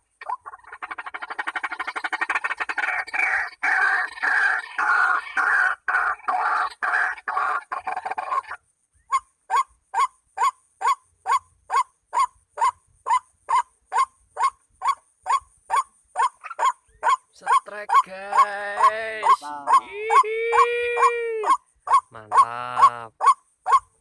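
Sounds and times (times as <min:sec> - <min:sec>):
waterhen calls: 0:00.0 - 0:24.0.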